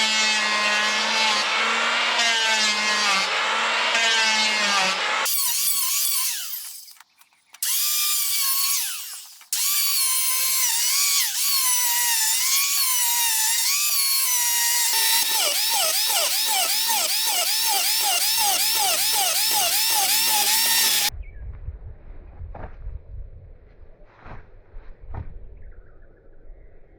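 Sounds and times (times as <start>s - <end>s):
electric power tool running: 0.0s - 21.1s.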